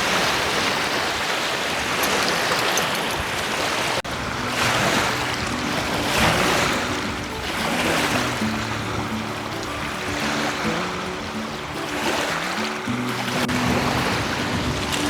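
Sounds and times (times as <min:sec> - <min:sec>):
waves washing on shore: 0:00.0 - 0:15.0
wind on microphone: 0:00.0 - 0:15.0
low background music: 0:04.3 - 0:15.0.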